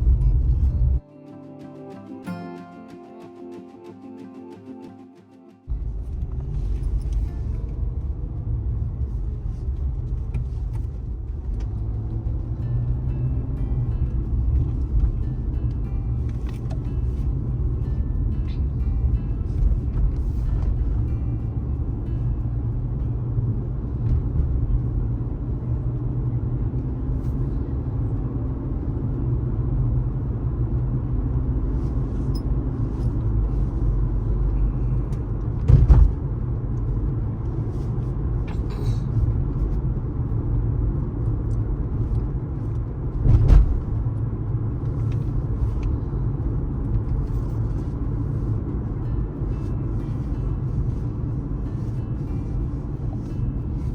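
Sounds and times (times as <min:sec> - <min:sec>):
car road rumble: 0:00.0 - 0:01.0, 0:05.7 - 0:53.9
short sharp thump: 0:35.6 - 0:36.2.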